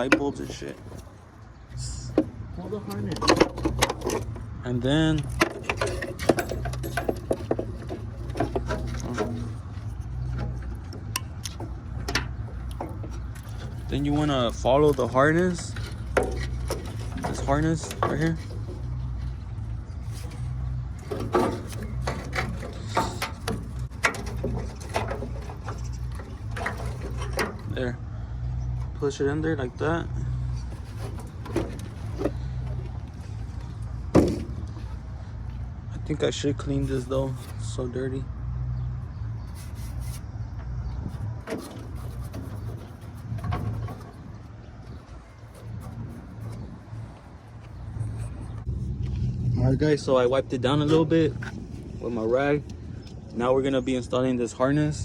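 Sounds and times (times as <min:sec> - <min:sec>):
low hum: 0:00.0 - 0:53.4
low rumble: 0:43.1 - 0:54.2.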